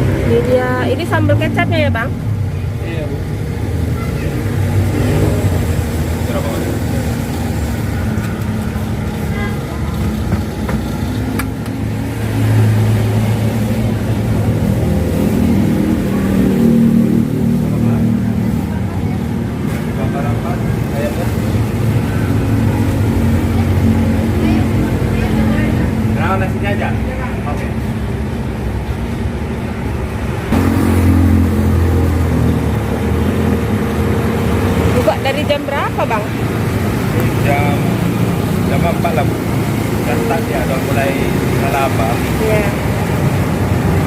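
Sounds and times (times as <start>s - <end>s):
road traffic: 0.0s - 44.0s
vehicle engine passing: 0.0s - 44.0s.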